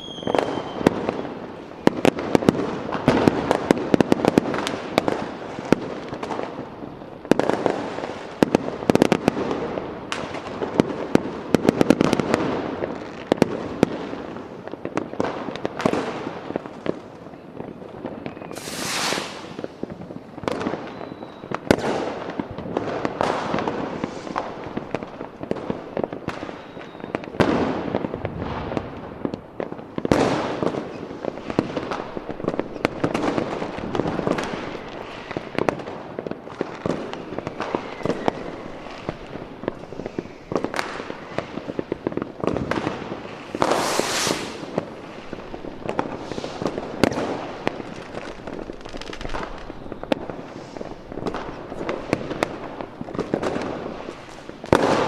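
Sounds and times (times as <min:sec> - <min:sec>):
rocket whistling: 0:00.0 - 0:00.9, 0:18.3 - 0:19.7, 0:20.8 - 0:21.6, 0:37.5 - 0:39.0, 0:43.4 - 0:44.8
fireworks bangs and crackling: 0:00.0 - 0:55.0.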